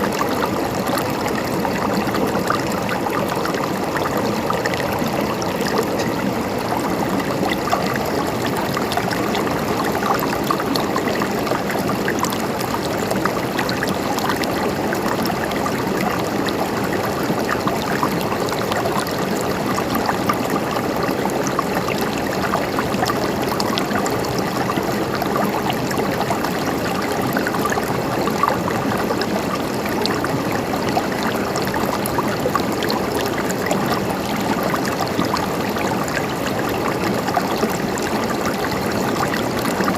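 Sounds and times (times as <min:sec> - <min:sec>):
stream water flowing and gurgling: 0:00.0 - 0:39.9.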